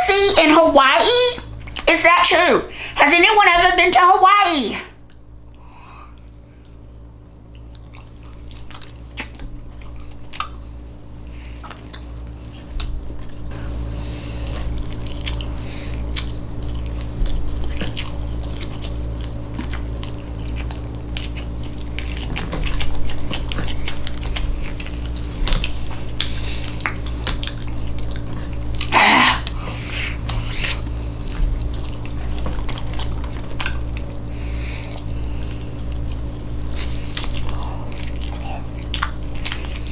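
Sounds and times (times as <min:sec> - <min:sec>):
steady low hum: 0:00.0 - 0:39.9
wet chewing clicks and smacks: 0:05.0 - 0:13.5, 0:14.1 - 0:39.9.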